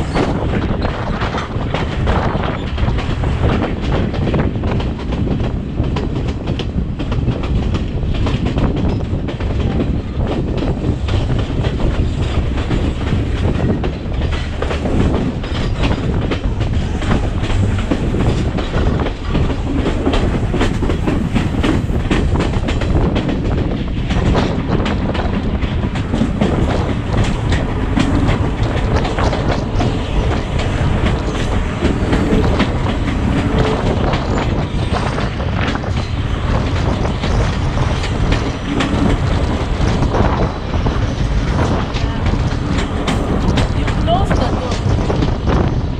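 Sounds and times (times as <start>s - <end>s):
train rumbling: 0.0s - 45.9s
train wheels clicking on rail joints: 0.0s - 45.9s.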